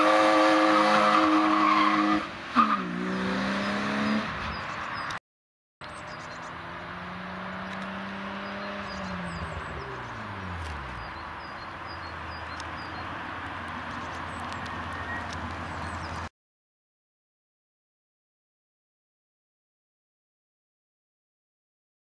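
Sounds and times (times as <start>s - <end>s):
car engine revving and idling: 5.9s - 12.6s.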